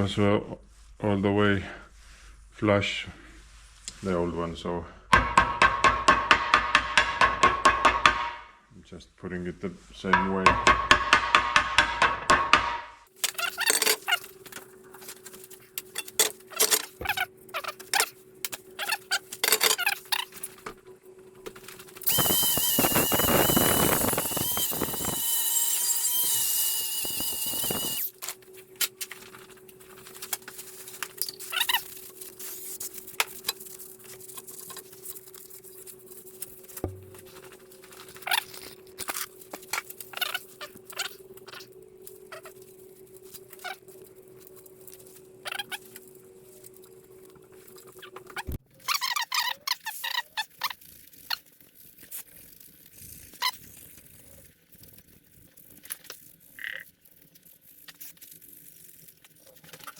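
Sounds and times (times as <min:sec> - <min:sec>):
whirring hiss with high whine: 0:22.0 - 0:28.2.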